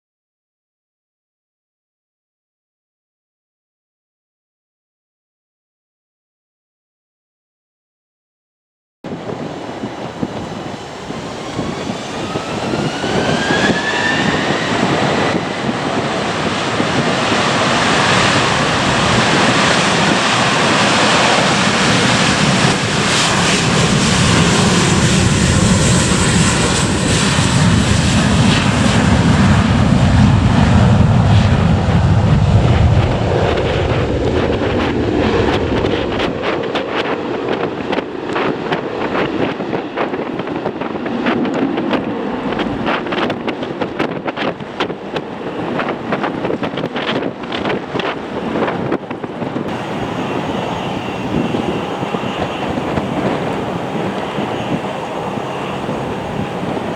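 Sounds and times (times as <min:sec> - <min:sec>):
jet engine whine rising: 0:09.1 - 0:37.0, 0:49.7 - 0:56.9
jet engine roar: 0:09.1 - 0:56.9.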